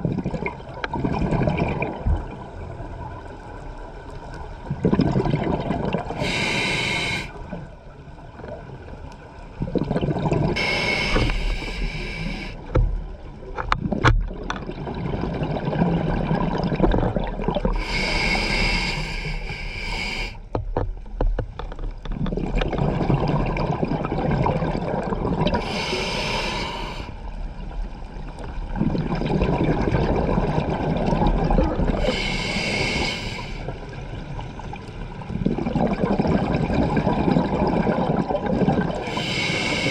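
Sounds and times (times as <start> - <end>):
rumbling exhaled bubbles: 0.0 - 6.6, 7.4 - 20.1, 22.0 - 39.9
regulator hissing inhales: 6.2 - 7.4, 10.6 - 12.6, 17.8 - 20.4, 25.6 - 27.2, 32.0 - 33.7, 39.0 - 39.9.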